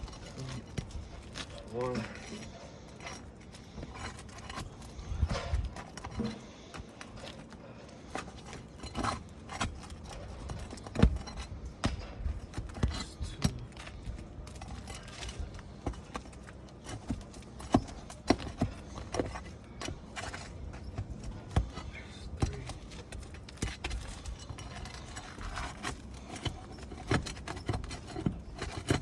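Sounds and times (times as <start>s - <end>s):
hand tools knocking on shingles: 8.0s - 29.0s.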